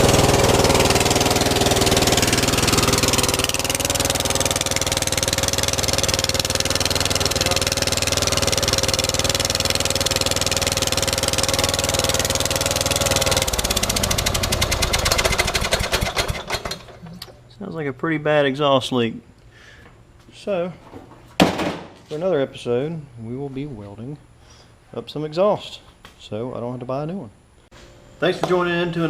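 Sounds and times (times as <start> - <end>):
mower engine with exhaust leak: 0.0 - 17.5.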